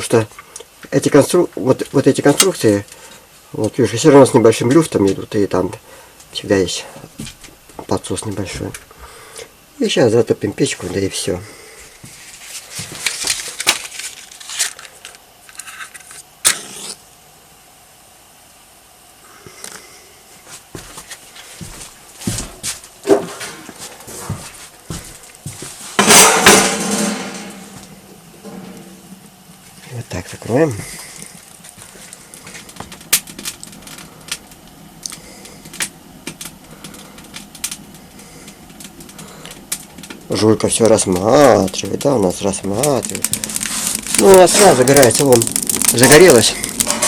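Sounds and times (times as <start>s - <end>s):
firewood crackling and popping: 0.0s - 9.6s, 10.5s - 16.9s, 20.7s - 47.0s
match flaring hiss: 41.2s - 47.0s.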